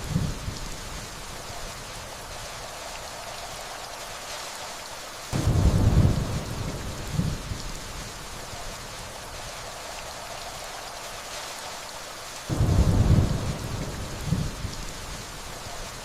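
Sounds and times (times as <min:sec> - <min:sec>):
steady rainfall: 0:00.0 - 0:16.0
distant thunder rumble: 0:05.4 - 0:10.8, 0:12.5 - 0:16.0.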